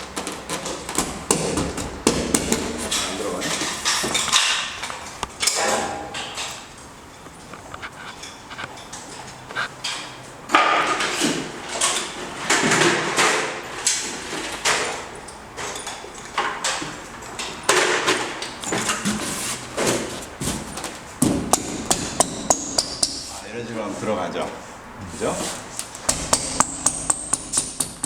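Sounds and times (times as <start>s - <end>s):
sharp knocks: 0.8s - 6.7s, 21.2s - 23.4s, 26.0s - 28.0s.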